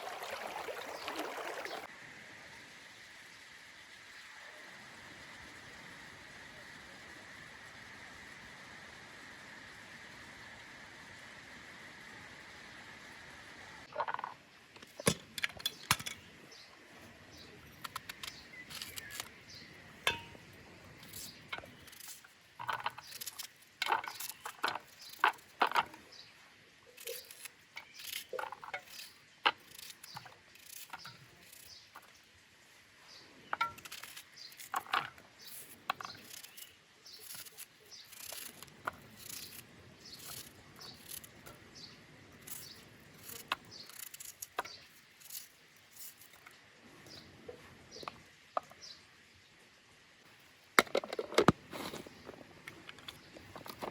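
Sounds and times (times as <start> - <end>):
sharp clicks and knocks: 13.9 - 16.3, 17.8 - 19.4, 50.8 - 53.9.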